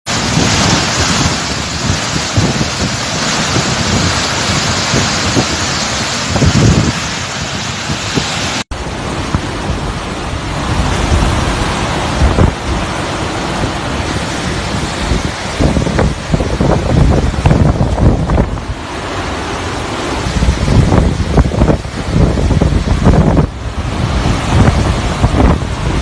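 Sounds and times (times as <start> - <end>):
driving rain: 0.1 - 26.0
hurricane wind: 0.1 - 26.0
wind gusts buffeting microphone: 0.1 - 26.0.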